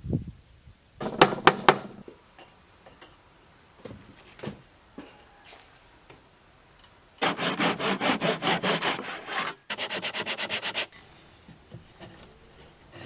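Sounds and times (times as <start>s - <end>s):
hand tool strokes on wood: 7.2s - 13.0s.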